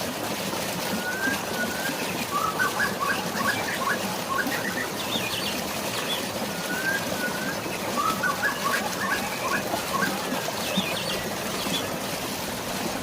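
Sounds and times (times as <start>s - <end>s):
rain and flowing water: 0.0s - 13.0s
drawn-out whistle: 0.9s - 5.0s, 6.4s - 10.4s
birds calling: 1.0s - 12.1s.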